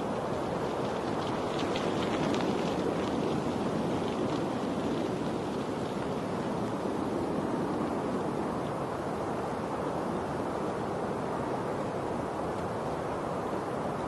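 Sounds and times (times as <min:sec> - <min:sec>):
rushing water: 0:00.0 - 0:14.0
faint splashy ticks: 0:00.3 - 0:06.8.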